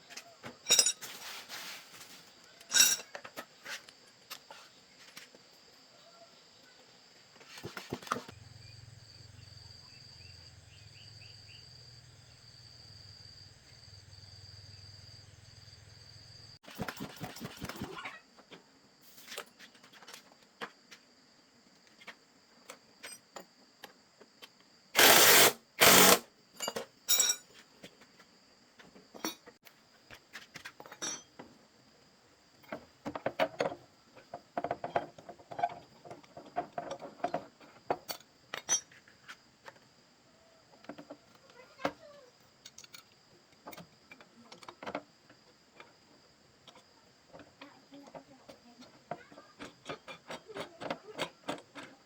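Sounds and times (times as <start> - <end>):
tools and metal parts clinking: 0.6 - 1.4, 2.6 - 3.5, 25.0 - 27.6, 29.1 - 29.5, 30.8 - 31.4, 32.6 - 39.0, 42.6 - 45.0.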